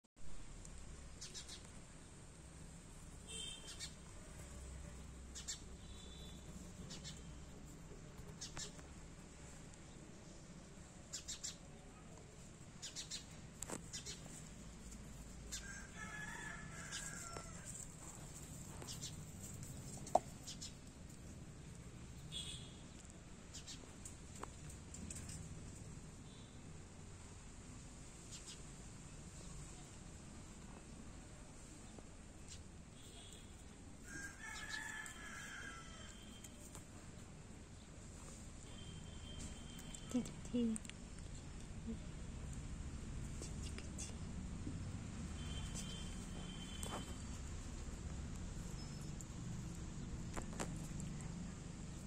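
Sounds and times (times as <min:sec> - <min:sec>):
faint outdoor ambience: 0:00.2 - 0:52.0
short bird calls: 0:03.3 - 0:04.0.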